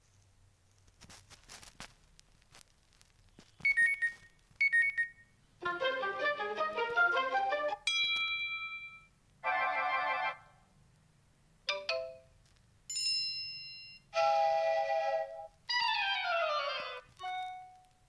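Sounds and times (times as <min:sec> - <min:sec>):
smartphone alert tones: 0:03.6 - 0:05.2.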